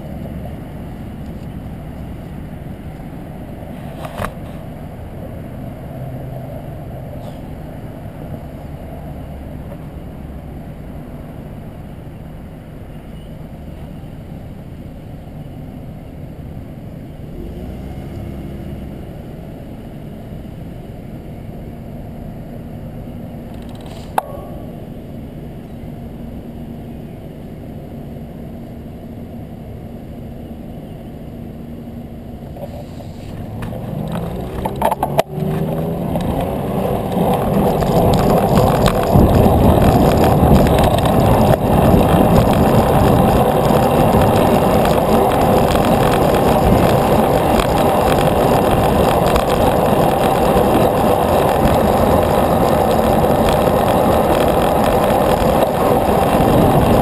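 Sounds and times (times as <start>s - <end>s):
wind and road noise: 0.0s - 57.0s
bicycle clicks: 32.6s - 57.0s.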